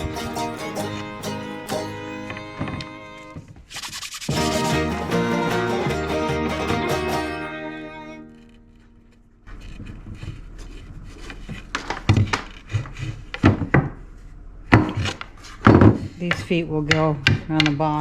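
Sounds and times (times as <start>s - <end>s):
background music: 0.0s - 3.2s, 4.3s - 8.6s.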